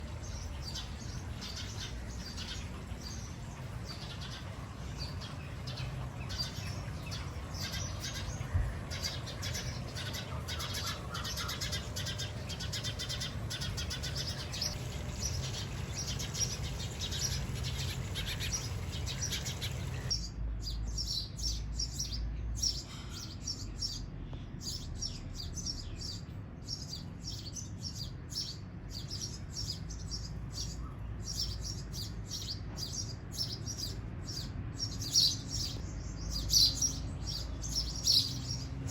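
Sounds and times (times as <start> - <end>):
low background rumble: 0.0 - 20.1
sparrows chirping: 0.0 - 38.9.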